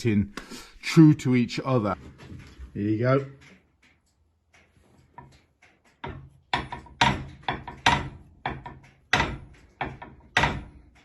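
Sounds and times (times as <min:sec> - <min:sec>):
steel plate clunking on surface: 0:04.6 - 0:11.0.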